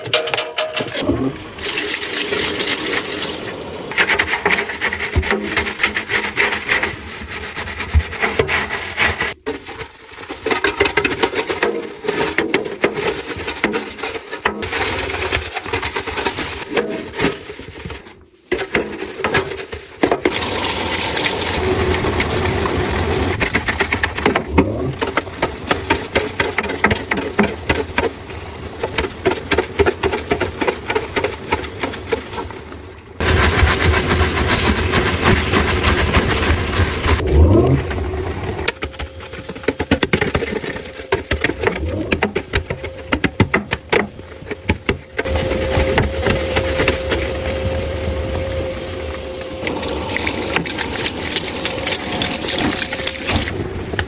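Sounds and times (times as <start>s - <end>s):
water and liquid noises: 0.0s - 54.0s.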